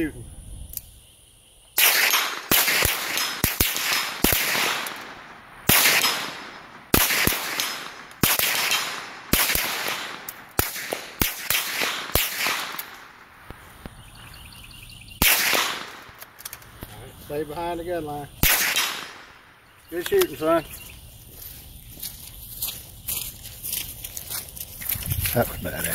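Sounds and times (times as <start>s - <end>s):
gunshots with short echo: 1.8s - 13.2s, 15.2s - 16.2s, 18.4s - 19.4s.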